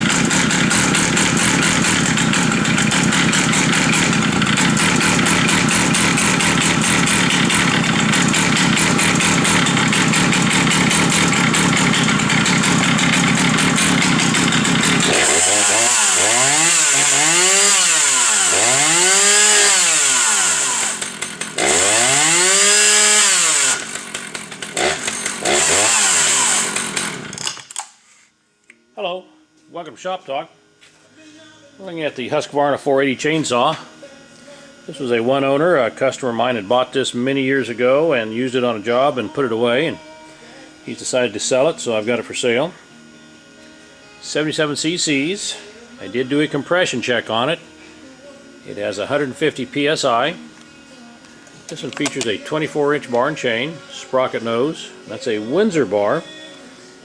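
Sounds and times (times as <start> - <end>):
chainsaw engine revving: 0.0 - 27.9, 44.2 - 47.6, 48.6 - 50.4, 51.5 - 56.4.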